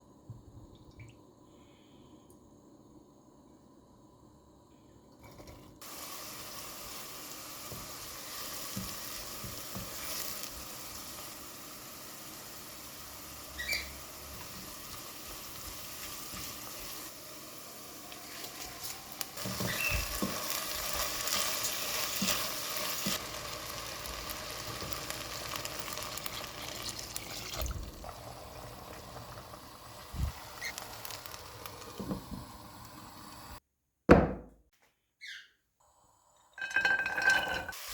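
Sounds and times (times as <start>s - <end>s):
food sizzling in a pan: 5.8s - 33.6s, 36.6s - 37.9s.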